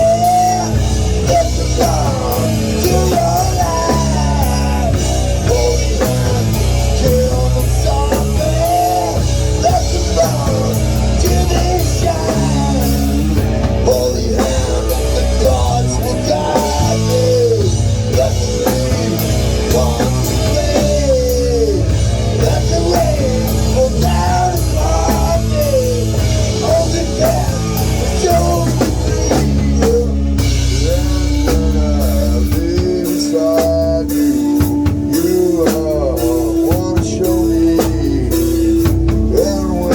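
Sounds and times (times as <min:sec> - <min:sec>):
person singing: 0:00.0 - 0:39.9
rock band playing: 0:00.0 - 0:39.9.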